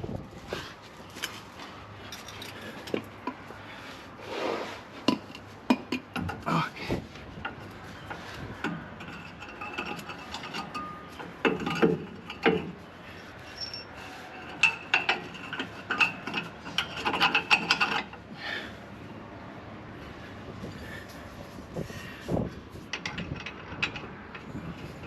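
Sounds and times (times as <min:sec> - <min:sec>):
hand tools clicking and knocking on metal: 0:01.1 - 0:03.7, 0:05.0 - 0:18.6, 0:22.8 - 0:25.0.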